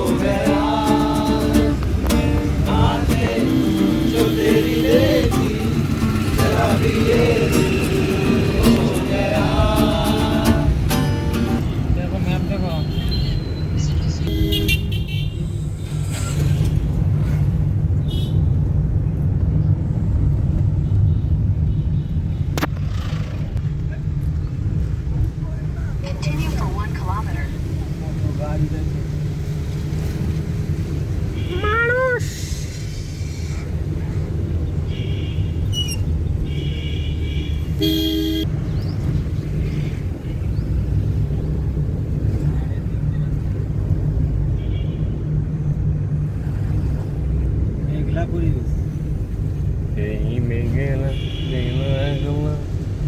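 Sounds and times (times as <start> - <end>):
vehicle horns honking: 0.0 - 9.4, 10.4 - 11.9, 12.5 - 16.8, 18.0 - 18.6, 34.8 - 38.5, 50.9 - 52.6
vehicle engine and road noise: 0.0 - 53.0.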